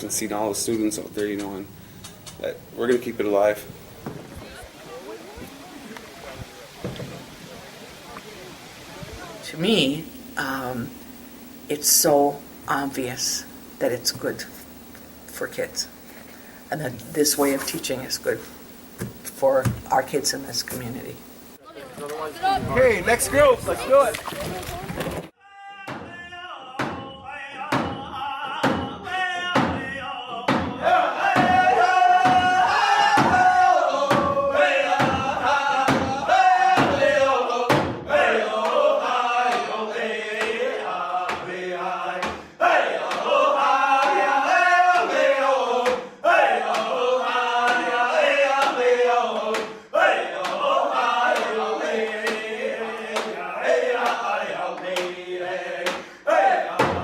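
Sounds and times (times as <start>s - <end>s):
group of voices chanting: 25.5s - 57.0s.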